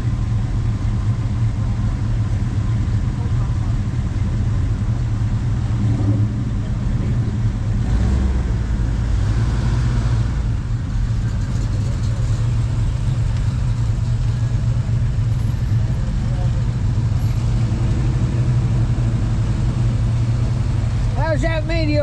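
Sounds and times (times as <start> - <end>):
car engines rumbling: 0.0 - 22.0.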